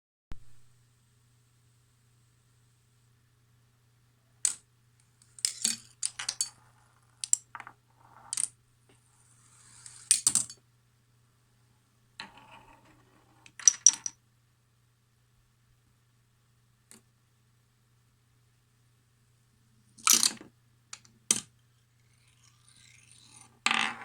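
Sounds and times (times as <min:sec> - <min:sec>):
faint steady hum: 0:00.4 - 0:24.0
small parts clicking and clacking: 0:05.3 - 0:06.6, 0:07.2 - 0:07.7, 0:09.8 - 0:10.6
ball rolling: 0:23.6 - 0:24.0.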